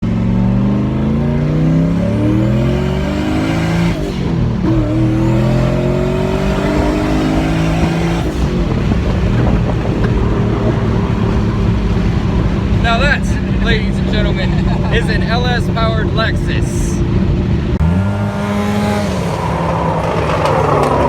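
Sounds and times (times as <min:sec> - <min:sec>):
engine accelerating hard: 0:00.0 - 0:21.0.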